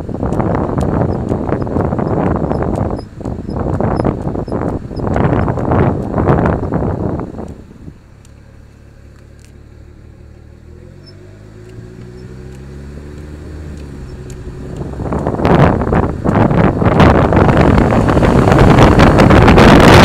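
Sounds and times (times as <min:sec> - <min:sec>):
car engine accelerating: 0:00.0 - 0:20.0
loud rushing noise: 0:15.4 - 0:20.0.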